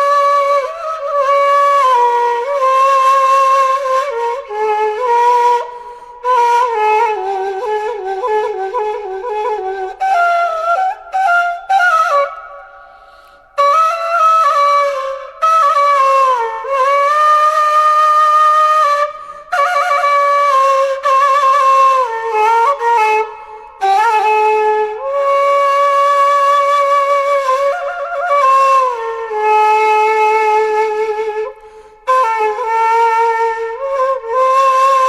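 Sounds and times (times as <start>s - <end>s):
solo flute melody: 0.0s - 35.0s.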